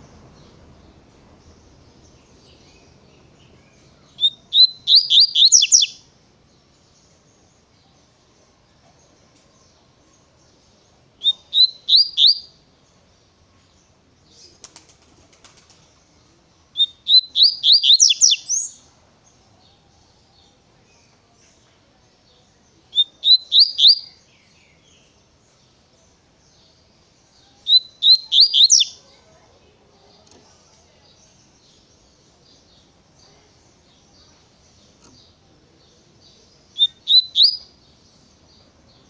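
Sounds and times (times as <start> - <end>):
bird singing whistled notes: 0.0 - 6.1, 11.2 - 12.6, 16.7 - 19.4, 22.3 - 25.2, 26.5 - 29.1, 36.0 - 39.0.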